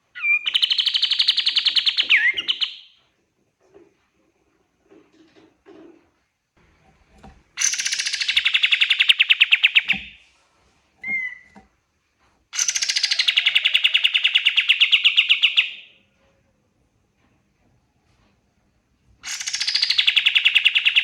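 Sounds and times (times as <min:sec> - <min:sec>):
bird rattling trills: 0:07.6 - 0:10.2.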